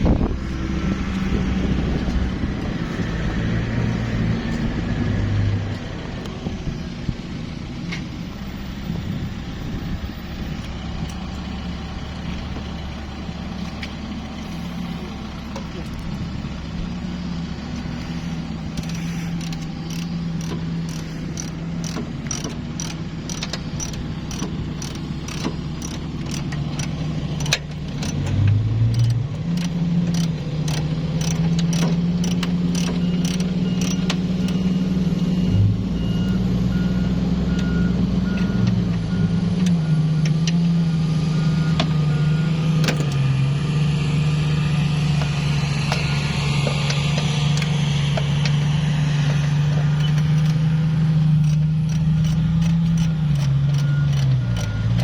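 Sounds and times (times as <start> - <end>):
vehicle engine running: 0.0 - 55.0
sharp ticks: 17.7 - 35.6, 45.2 - 55.0.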